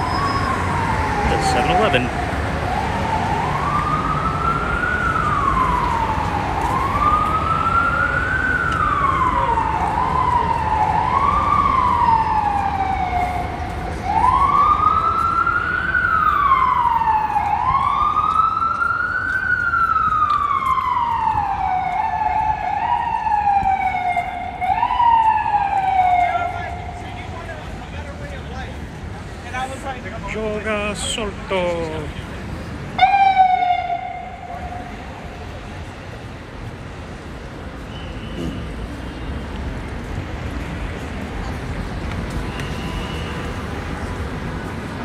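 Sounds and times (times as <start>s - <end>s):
emergency siren wailing: 0.0s - 28.2s, 32.8s - 37.3s
low traffic rumble: 0.0s - 45.0s.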